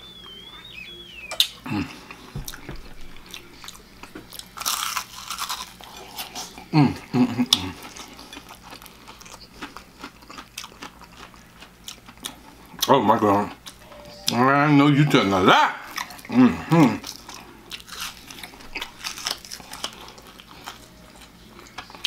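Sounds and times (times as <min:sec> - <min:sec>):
person humming briefly: 0:01.6 - 0:02.1
crunching fried chicken: 0:03.2 - 0:13.8, 0:15.8 - 0:22.0.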